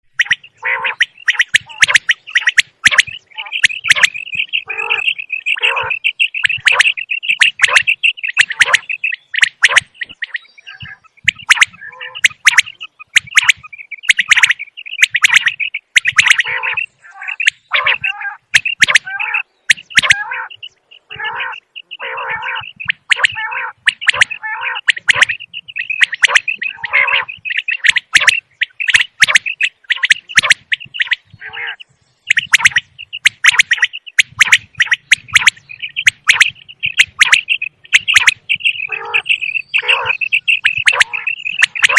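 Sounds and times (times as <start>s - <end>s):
quail calling: 0.0s - 41.9s
sharp clicks: 32.3s - 41.9s.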